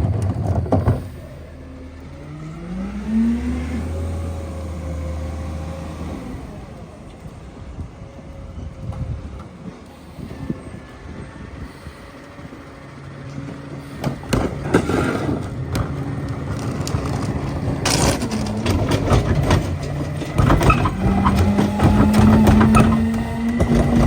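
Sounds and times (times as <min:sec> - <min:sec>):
garbage truck engine humming: 0:00.0 - 0:24.0
trash cracking and snapping: 0:14.0 - 0:24.0.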